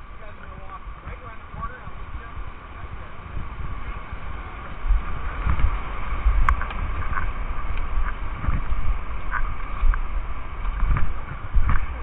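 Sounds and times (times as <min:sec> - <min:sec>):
whitewater rushing: 0:00.0 - 0:12.0
wind buffeting microphone: 0:00.0 - 0:12.0.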